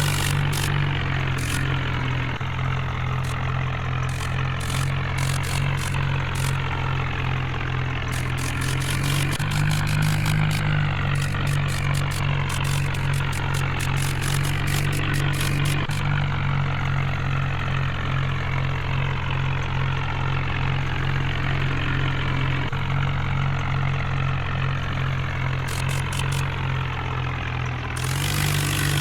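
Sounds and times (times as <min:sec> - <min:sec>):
tractor engine running: 0:00.0 - 0:16.4, 0:25.5 - 0:29.0.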